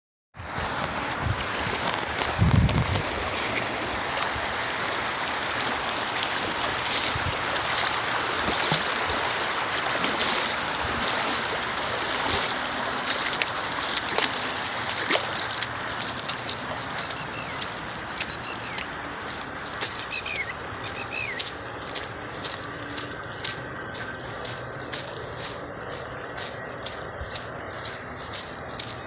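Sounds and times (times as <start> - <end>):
river water rushing: 0.4 - 29.0.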